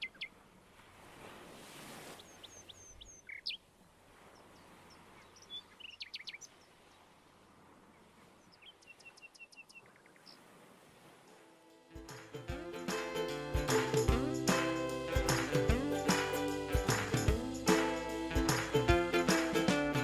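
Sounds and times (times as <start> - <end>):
small birds chirping and trilling: 2.2 - 3.7, 4.4 - 6.8, 8.4 - 10.4.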